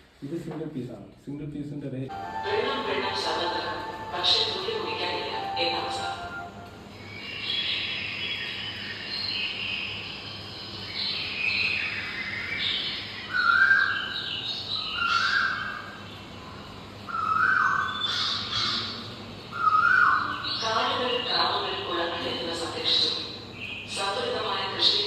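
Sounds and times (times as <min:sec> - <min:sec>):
birds cawing: 0:14.9 - 0:16.0, 0:17.1 - 0:20.4.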